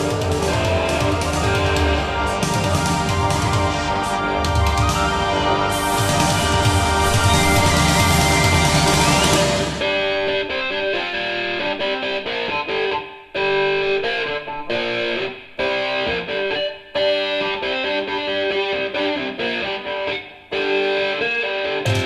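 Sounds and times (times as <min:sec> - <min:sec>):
heavy bass and drum hits: 0:00.0 - 0:10.1
guitar music with held notes: 0:00.0 - 0:22.0.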